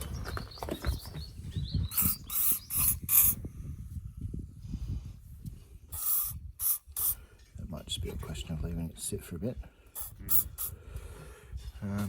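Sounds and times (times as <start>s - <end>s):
aerosol spray hissing: 6.0s - 7.2s.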